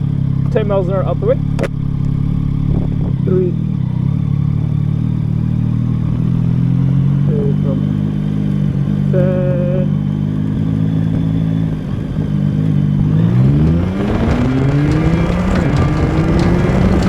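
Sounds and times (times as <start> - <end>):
motorcycle engine accelerating: 0.0 - 17.0
wind rush: 1.8 - 3.3.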